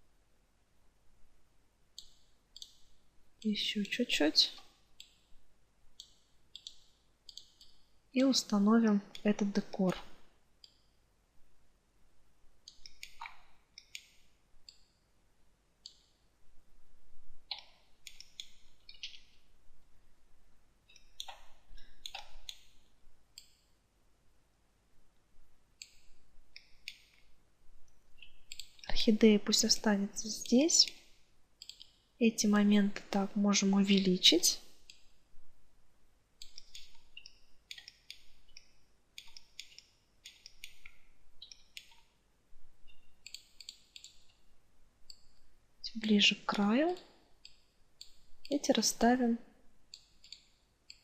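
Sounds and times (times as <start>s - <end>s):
computer mouse clicking: 1.9s - 5.3s, 6.0s - 10.9s, 12.6s - 15.0s, 15.8s - 16.2s, 17.5s - 19.4s, 20.9s - 22.8s, 25.8s - 27.2s, 28.2s - 29.0s, 30.3s - 32.0s, 36.4s - 42.2s, 42.9s - 44.4s, 49.9s - 51.0s.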